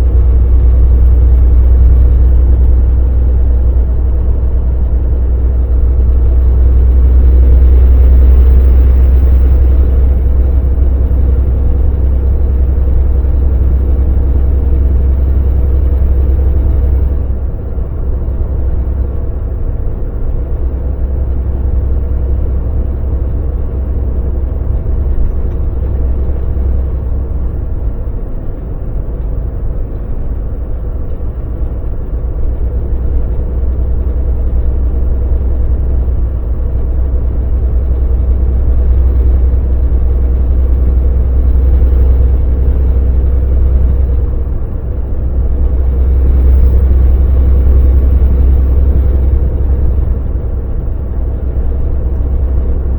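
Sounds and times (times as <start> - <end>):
road noise: 0.0 - 52.9
truck diesel engine: 0.0 - 52.9.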